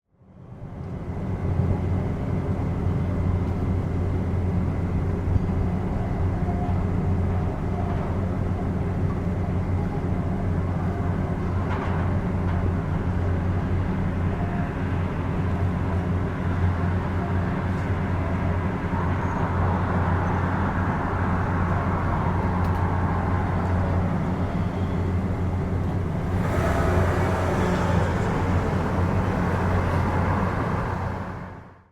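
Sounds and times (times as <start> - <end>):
loud rushing noise: 26.0 - 31.9.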